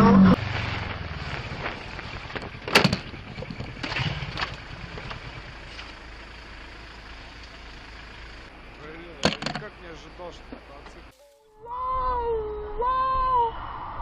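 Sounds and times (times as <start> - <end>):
car driving road noise: 0.0 - 11.2.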